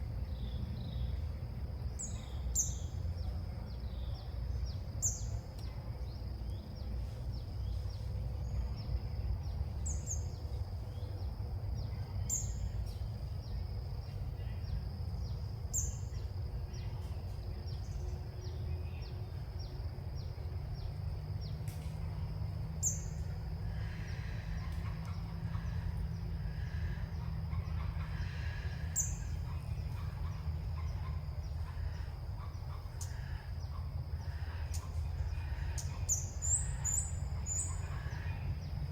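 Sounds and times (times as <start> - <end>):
low wind rumble: 0.0 - 38.9
birds chirping: 22.8 - 38.9.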